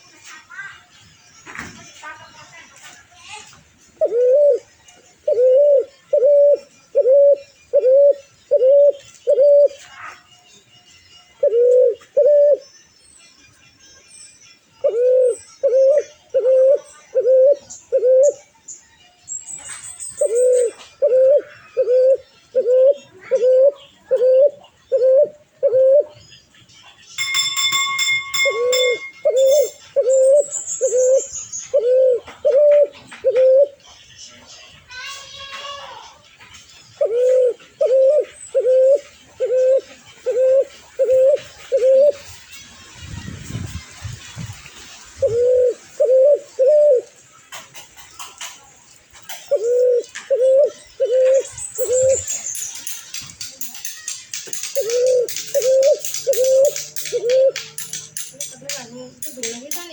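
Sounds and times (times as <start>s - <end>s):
bird cooing: 4.0s - 9.9s, 11.4s - 12.6s, 14.8s - 18.5s, 20.2s - 26.2s, 27.2s - 33.9s, 36.8s - 42.6s, 44.8s - 48.6s, 49.2s - 59.9s
higher buzzing ringing bird call: 27.2s - 30.4s
very high falling bird notes: 27.2s - 33.8s, 49.4s - 59.9s.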